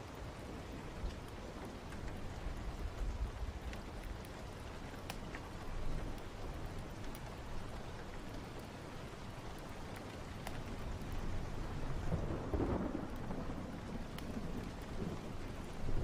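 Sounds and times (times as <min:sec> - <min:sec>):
steady rain: 0:00.0 - 0:16.0
faint sharp crackles: 0:01.0 - 0:16.0
thunder rumbling: 0:10.7 - 0:16.0.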